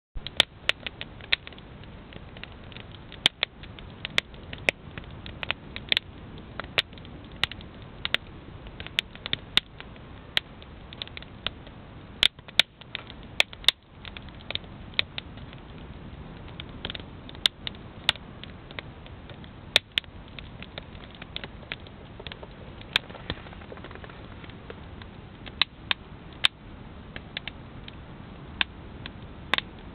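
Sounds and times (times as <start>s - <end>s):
campfire pops and snaps: 0.2s - 29.9s
fire hissing: 0.3s - 29.9s.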